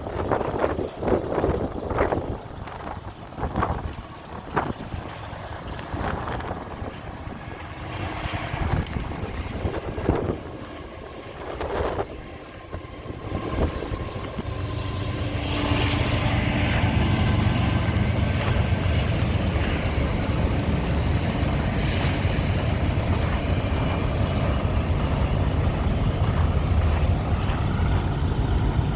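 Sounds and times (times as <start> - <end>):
diesel truck engine idling: 0.0 - 28.9.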